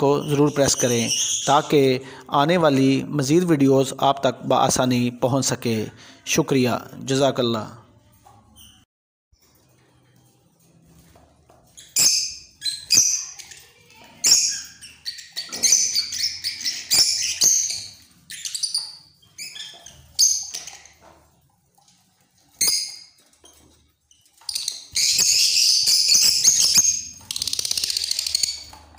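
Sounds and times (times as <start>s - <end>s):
birds calling in shrill bursts: 24.5s - 28.7s.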